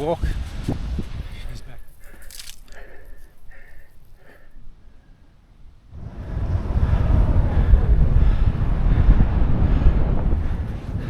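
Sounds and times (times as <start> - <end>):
scuff of sand: 0.0 - 3.4
footsteps crunching in sand: 0.0 - 4.2.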